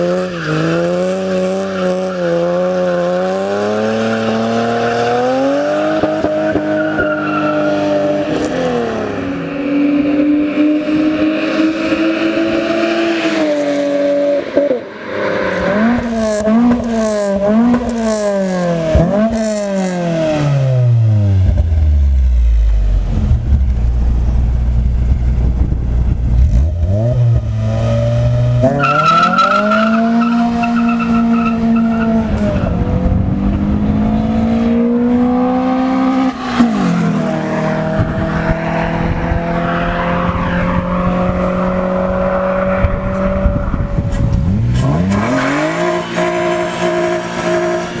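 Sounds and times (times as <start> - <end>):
car engine revving and idling: 15.5 - 48.0.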